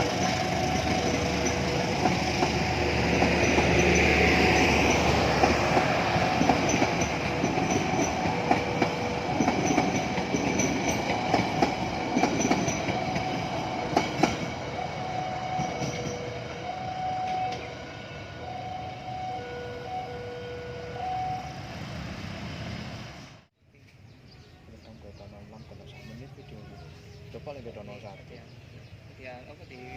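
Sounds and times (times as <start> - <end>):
train wheels clicking on rails: 0.0 - 14.7, 15.4 - 16.5.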